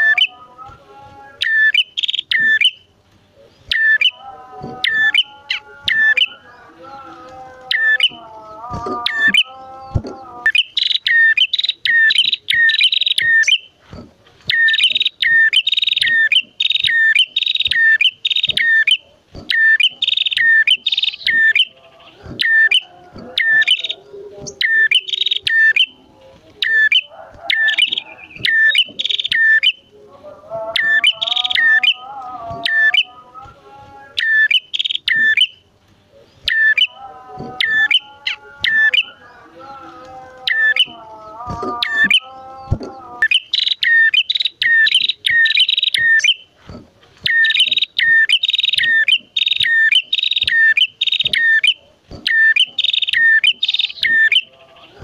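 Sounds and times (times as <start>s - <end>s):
bird's lower wavering chatter: 8.9s - 26.0s, 26.6s - 29.8s, 40.0s - 55.0s.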